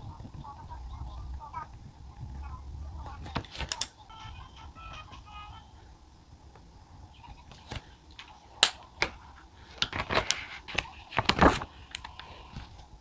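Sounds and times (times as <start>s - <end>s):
paper rustle: 7.3s - 13.0s.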